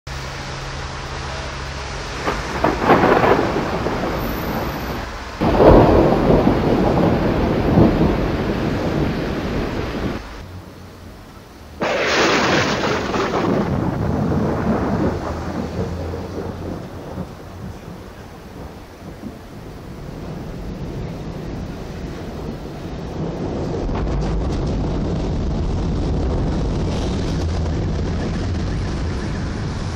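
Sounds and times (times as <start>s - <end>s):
thunder rumble and clap: 2.0s - 10.4s, 11.8s - 29.9s.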